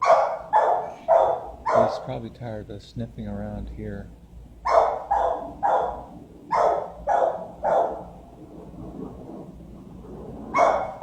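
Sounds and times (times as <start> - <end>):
dog barking: 0.0 - 2.2, 4.6 - 8.2, 10.5 - 11.0.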